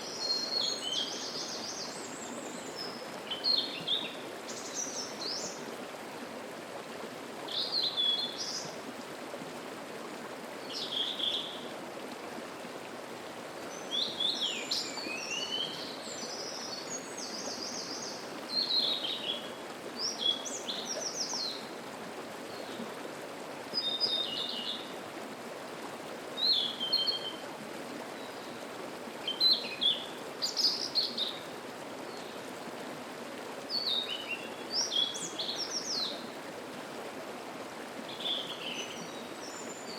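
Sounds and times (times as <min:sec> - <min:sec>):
songbirds singing: 0:00.0 - 0:05.7, 0:10.6 - 0:11.7, 0:13.7 - 0:21.7, 0:26.4 - 0:27.4, 0:28.2 - 0:32.5, 0:33.7 - 0:36.3, 0:38.1 - 0:39.9
mountain stream rushing: 0:00.0 - 0:39.9.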